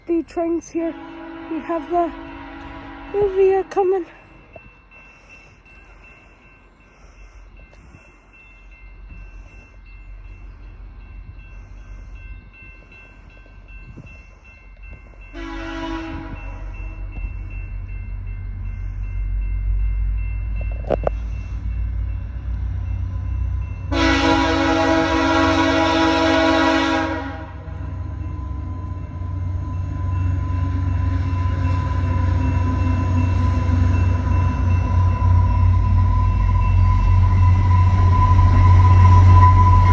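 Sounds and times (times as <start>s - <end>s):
passenger train rumbling: 0.0s - 39.9s
train horn: 0.7s - 4.0s, 15.3s - 16.7s, 23.9s - 28.0s, 34.9s - 39.9s.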